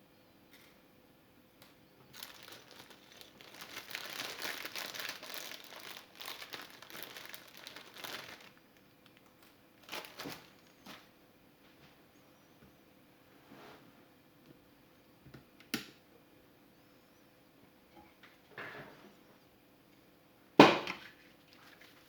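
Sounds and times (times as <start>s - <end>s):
plastic packaging crinkling: 2.1s - 11.1s.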